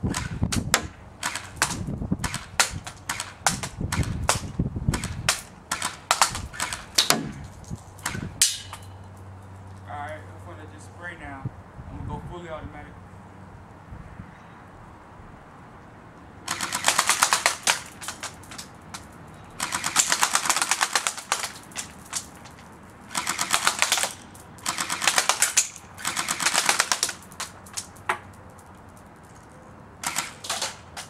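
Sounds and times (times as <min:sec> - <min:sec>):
airsoft rifle firing bursts: 0:00.1 - 0:07.4, 0:16.5 - 0:18.3, 0:19.6 - 0:22.2, 0:23.1 - 0:27.5, 0:30.0 - 0:30.9.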